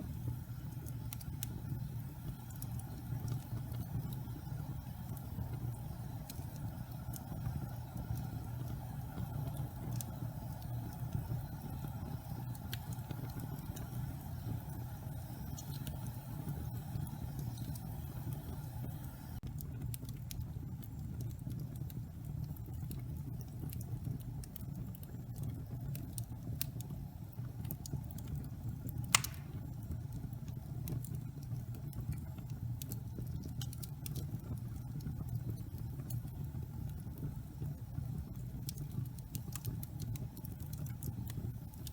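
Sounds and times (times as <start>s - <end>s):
fire flames rumbling: 0.0s - 41.9s
wood fire crackling: 0.0s - 41.9s
loud pop from fire: 29.1s - 29.6s.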